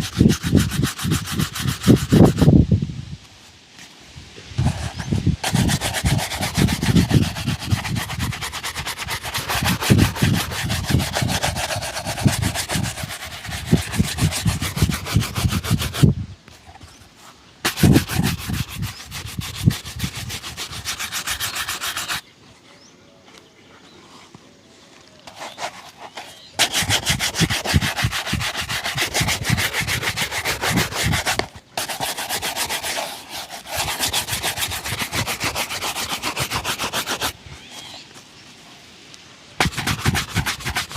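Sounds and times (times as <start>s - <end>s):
brush scrubbing shoe: 0.0s - 2.6s, 4.6s - 16.1s, 17.6s - 22.2s, 25.2s - 38.0s, 39.6s - 40.9s.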